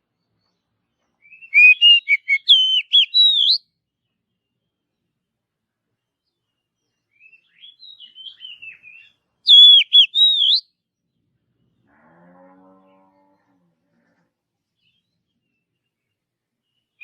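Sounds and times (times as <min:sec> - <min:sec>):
faint low bird call: 0:01.2 - 0:03.6, 0:07.2 - 0:10.6
bird warbling and whistling: 0:01.4 - 0:03.6, 0:09.5 - 0:10.6.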